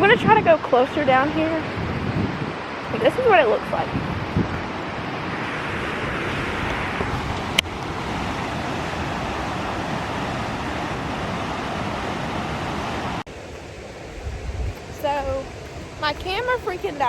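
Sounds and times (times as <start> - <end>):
water rushing at a dam: 0.0 - 17.0.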